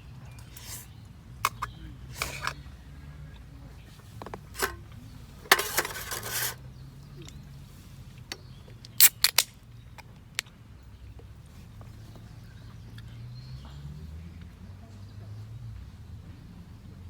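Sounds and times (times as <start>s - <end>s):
rustle: 3.8s - 9.6s
sharp clicks: 8.8s - 9.5s.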